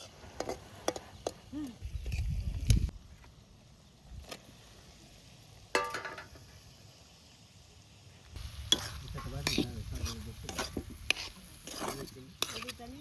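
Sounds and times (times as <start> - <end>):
food sizzling in a pot: 3.9 - 13.0
spoon stirring and scraping: 8.5 - 13.0.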